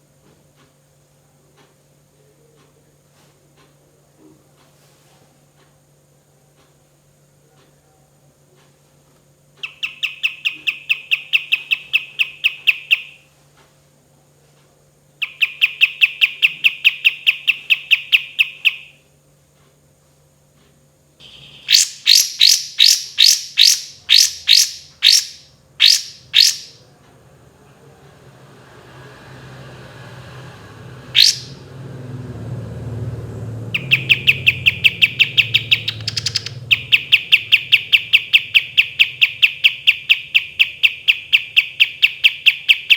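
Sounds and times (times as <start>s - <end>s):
songbird trilling: 9.6s - 13.2s, 15.2s - 19.0s, 21.2s - 26.8s, 31.1s - 31.6s, 33.7s - 42.9s.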